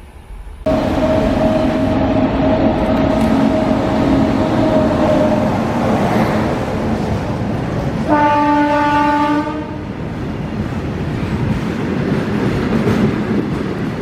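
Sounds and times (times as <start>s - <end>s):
train rumbling past: 0.0s - 14.0s
locomotive horn blast: 0.7s - 6.7s, 8.0s - 9.9s.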